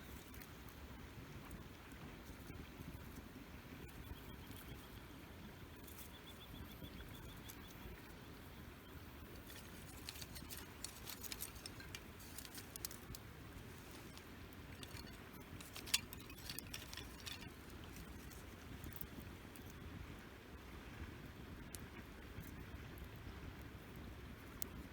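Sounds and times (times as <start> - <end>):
campfire crackling: 8.5 - 24.9
burning wood popping: 9.2 - 19.8.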